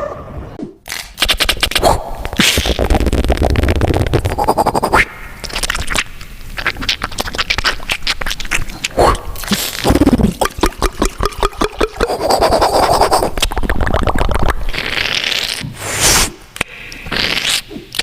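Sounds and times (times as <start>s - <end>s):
beatbox hiss: 0.9s - 6.0s, 6.6s - 16.4s, 17.0s - 18.0s
beatbox clicks and scrapes: 0.9s - 8.7s, 12.0s - 16.3s, 17.1s - 18.0s
beatbox falling tone: 0.9s - 16.4s, 17.0s - 18.0s.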